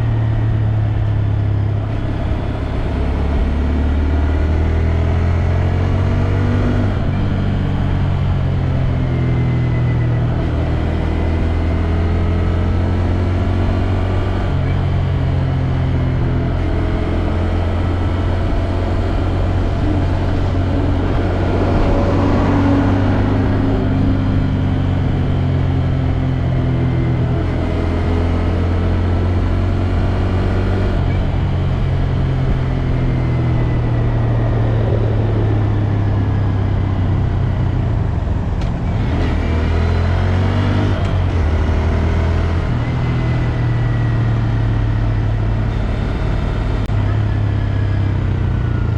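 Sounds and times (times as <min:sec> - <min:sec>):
motorcycle engine running: 0:14.2 - 0:39.3.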